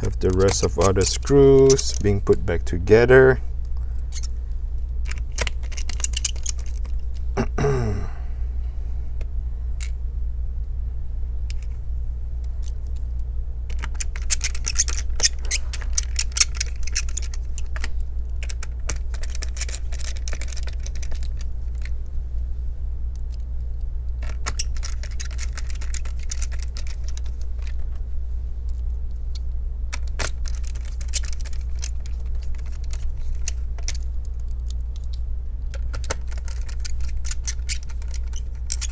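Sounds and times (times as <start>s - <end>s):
screwdriver and screws rattling: 0.0s - 3.0s, 4.1s - 4.3s, 5.1s - 7.3s, 13.7s - 21.9s, 24.2s - 27.8s, 29.9s - 35.2s, 35.8s - 38.9s
steady low hum: 0.0s - 38.9s.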